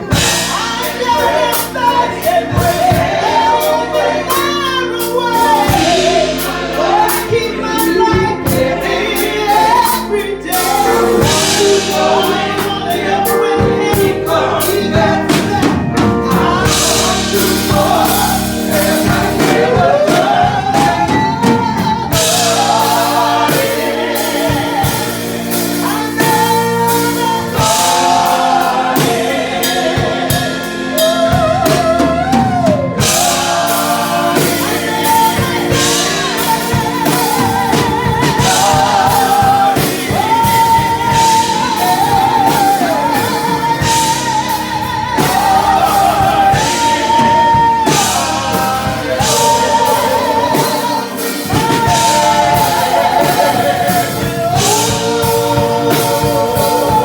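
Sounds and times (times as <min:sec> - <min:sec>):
band with drums and chords: 0:00.0 - 0:57.0
woman singing gospel: 0:00.0 - 0:57.0.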